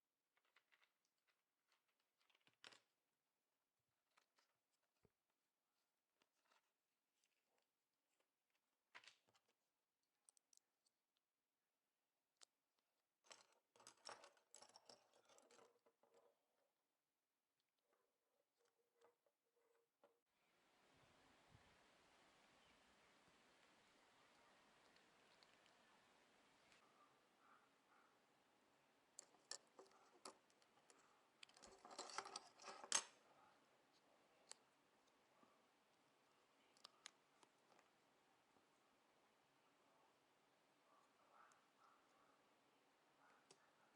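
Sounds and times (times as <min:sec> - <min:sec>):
scratchy rustling and clicking: 0:29.1 - 0:33.2.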